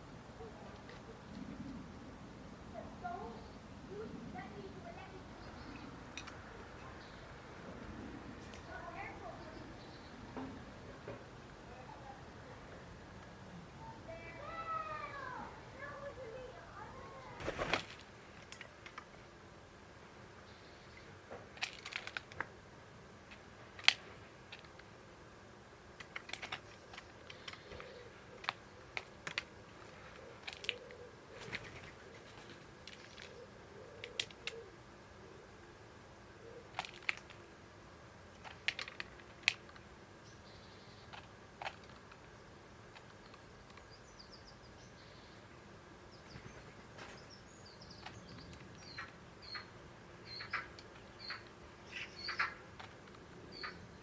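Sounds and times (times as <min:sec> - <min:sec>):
faint bird chirps: 0:46.1 - 0:52.6
beaks pecking at seed: 0:46.1 - 0:54.0.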